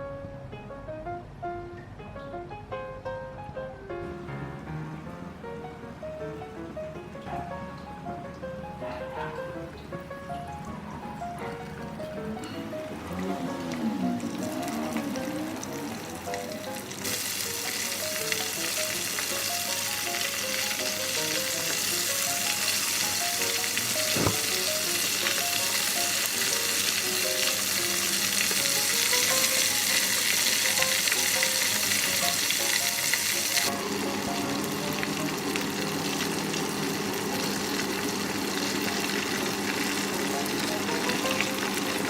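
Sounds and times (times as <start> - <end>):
chicken frying in hot oil: 10.4 - 42.0.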